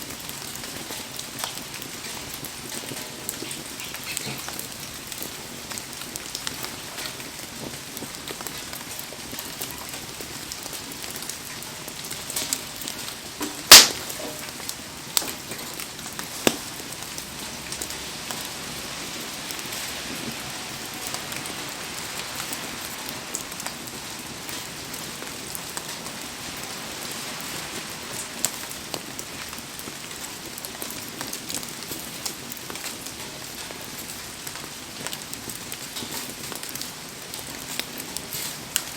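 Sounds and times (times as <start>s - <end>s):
crackling campfire: 0.0s - 38.9s
heavy rain: 0.0s - 38.9s
fire pops: 1.0s - 18.5s.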